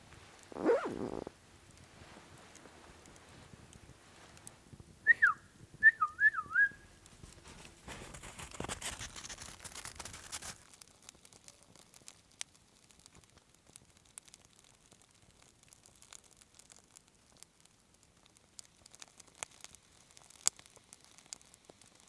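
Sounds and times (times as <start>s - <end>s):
rustling and crunching: 0.0s - 4.9s, 6.0s - 22.0s
loud whistled call: 5.1s - 6.8s.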